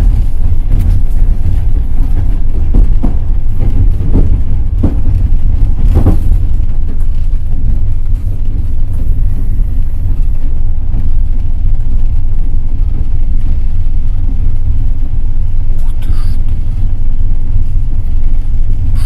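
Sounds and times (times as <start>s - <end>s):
wheel knocks over rail joints: 0.0s - 7.8s
train rumbling on rails: 0.0s - 19.0s.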